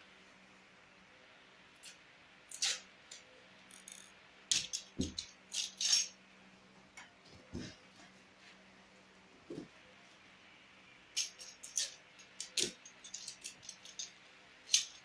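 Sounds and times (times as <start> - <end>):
faint steady hum: 0.0 - 15.0
hard objects clicking and knocking: 3.7 - 6.0, 11.2 - 15.0.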